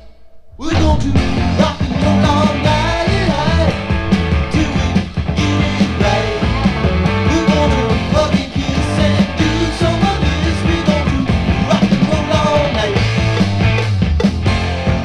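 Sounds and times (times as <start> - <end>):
deep bass: 0.5 - 15.0
rock band playing: 0.8 - 15.0.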